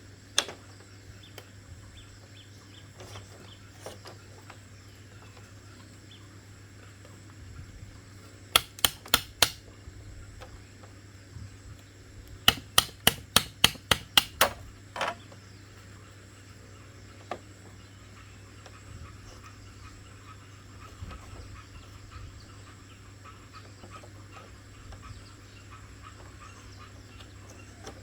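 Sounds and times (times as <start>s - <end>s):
hammer striking bamboo: 8.6s - 9.6s, 12.4s - 14.6s.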